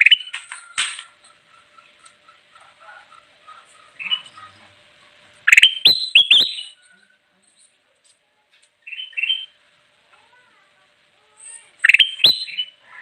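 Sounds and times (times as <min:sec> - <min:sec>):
bird singing whistled notes: 0:05.5 - 0:06.8, 0:08.9 - 0:09.6, 0:11.8 - 0:12.8.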